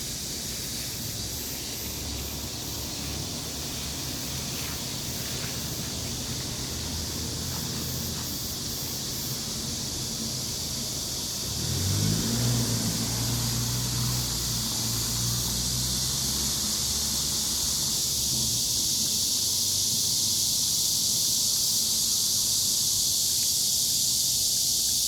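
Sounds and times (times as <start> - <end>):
low engine hum: 0.0 - 18.9
high-pitched insect chorus: 0.0 - 25.0.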